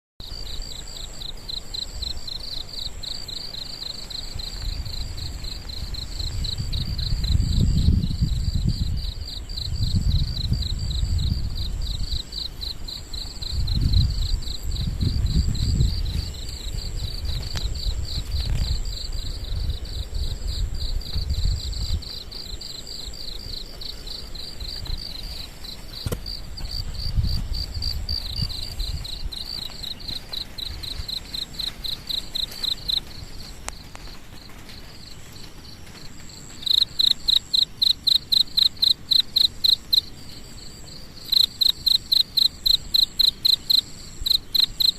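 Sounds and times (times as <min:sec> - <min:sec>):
insects chirping: 0:00.2 - 0:44.9
low rumbling gusts: 0:04.2 - 0:35.3.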